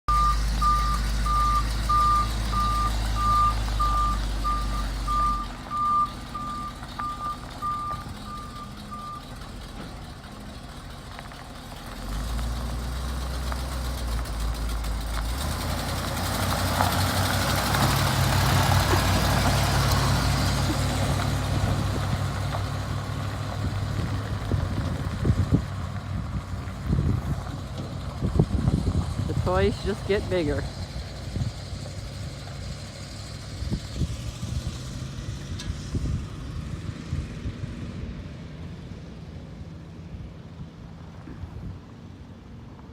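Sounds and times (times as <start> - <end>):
diesel truck engine: 0.0 - 42.9
truck reverse alarm beeping: 0.1 - 9.4.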